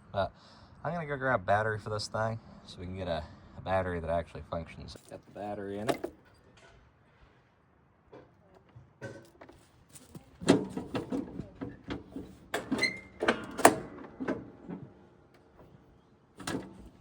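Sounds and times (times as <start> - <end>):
metallic knocks and clanks: 10.4 - 15.8, 16.4 - 17.0.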